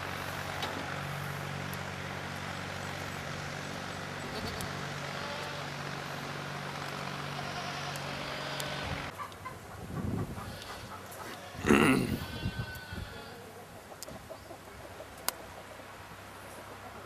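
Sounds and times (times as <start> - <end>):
vehicle engine running: 0.0 - 11.5.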